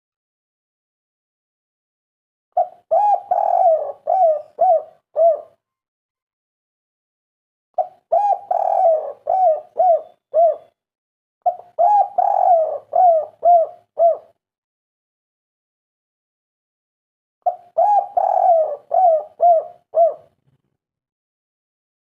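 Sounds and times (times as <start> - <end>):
dove cooing: 2.6 - 5.6, 7.8 - 10.8, 11.5 - 14.4, 17.4 - 20.4.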